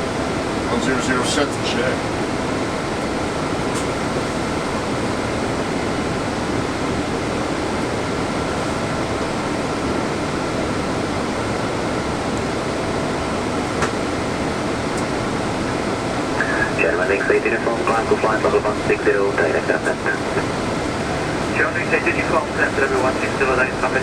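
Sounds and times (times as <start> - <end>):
air-conditioning noise: 0.0 - 24.0
airflow noise: 13.6 - 24.0.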